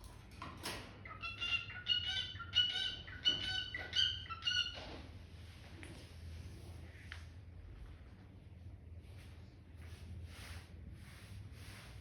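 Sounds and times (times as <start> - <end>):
cockatiel chirping: 1.1 - 4.8.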